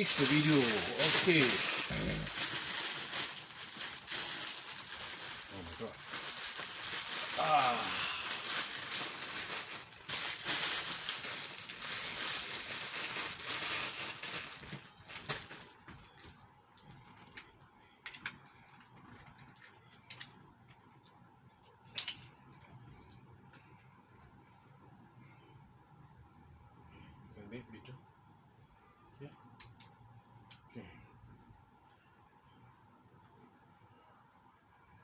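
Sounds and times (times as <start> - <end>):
close rustling and handling noise: 0.0 - 25.1.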